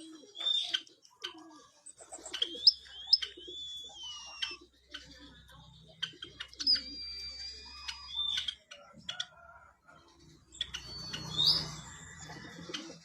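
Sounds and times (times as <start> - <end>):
bird whistling: 2.2 - 4.7, 6.2 - 8.7, 10.5 - 11.9.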